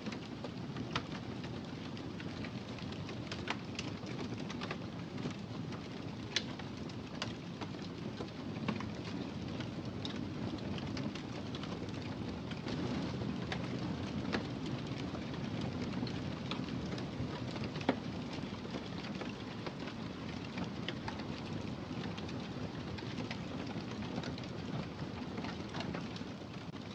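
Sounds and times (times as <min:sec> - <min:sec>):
fire crackling and popping: 0:00.0 - 0:26.9
fire flames rushing: 0:05.8 - 0:26.5.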